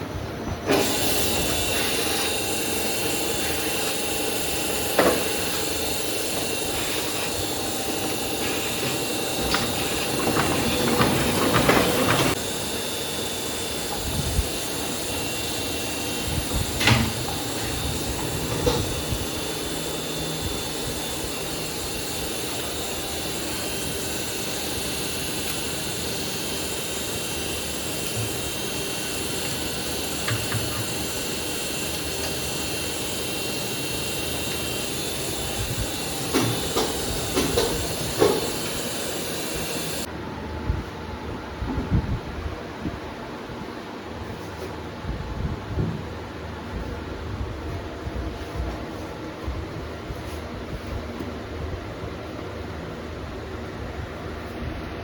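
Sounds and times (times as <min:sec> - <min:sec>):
printing press whirring: 0:00.0 - 0:41.9.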